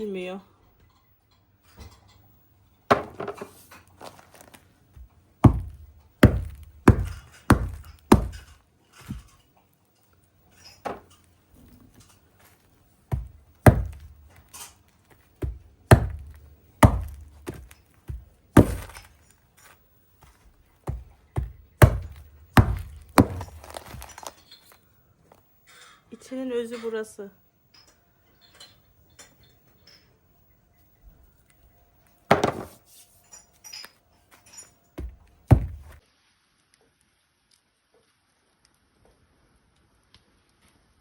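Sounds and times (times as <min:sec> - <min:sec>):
pine cones being chopped: 0:05.4 - 0:09.2, 0:13.1 - 0:19.2, 0:20.9 - 0:24.4, 0:35.0 - 0:36.0.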